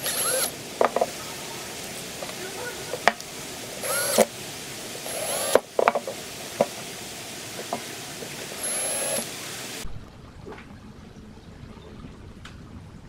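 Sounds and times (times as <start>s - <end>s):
small power tool bursts: 0.0s - 1.1s, 3.8s - 4.4s, 5.0s - 5.7s, 8.4s - 9.8s.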